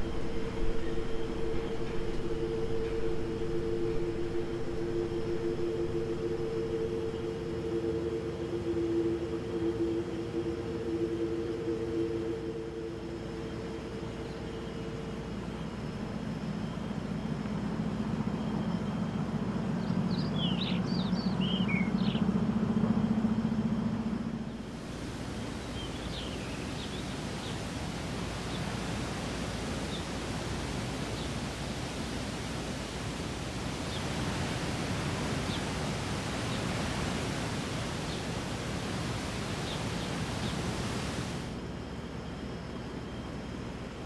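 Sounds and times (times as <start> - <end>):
steady hiss: 0.0 - 19.8, 24.3 - 44.0
low drone of distant engine: 0.0 - 44.0.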